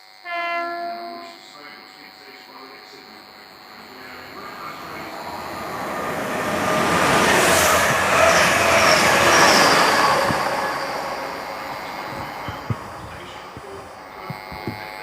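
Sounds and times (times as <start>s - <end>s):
train rumbling past: 0.3s - 15.0s
wheels squealing: 3.9s - 15.0s.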